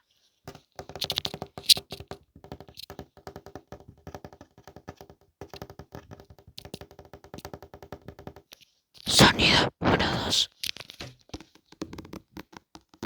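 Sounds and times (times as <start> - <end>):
fingernail tapping on hard object: 0.5 - 8.6.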